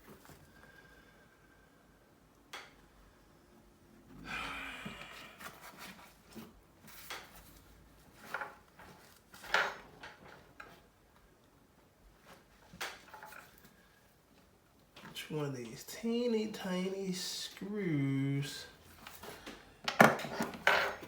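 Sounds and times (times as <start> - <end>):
scrape and rustle on desk: 5.4 - 10.8, 20.2 - 21.0.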